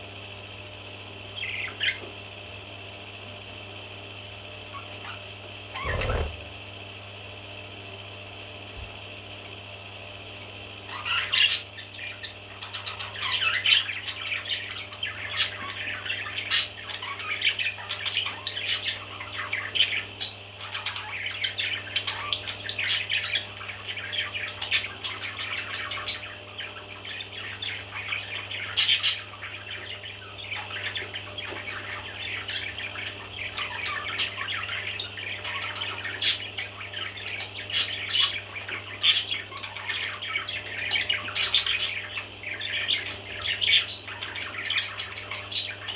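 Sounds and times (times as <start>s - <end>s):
steady low hum: 0.0s - 10.4s
sharp parrot squawks: 5.8s - 6.4s
baby parrots chirping: 5.8s - 6.5s, 10.9s - 26.8s, 27.4s - 45.9s.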